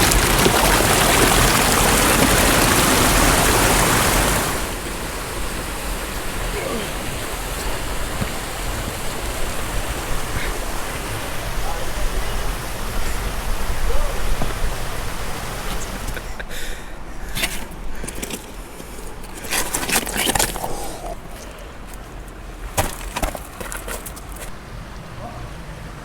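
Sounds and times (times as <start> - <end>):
creek water rushing: 0.0 - 26.0
crackling and snapping: 17.4 - 24.5.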